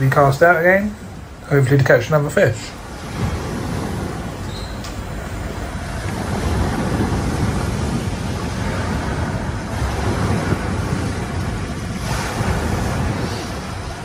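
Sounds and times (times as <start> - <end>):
waves breaking on a beach: 0.0 - 14.0
wind buffeting microphone: 0.0 - 14.0.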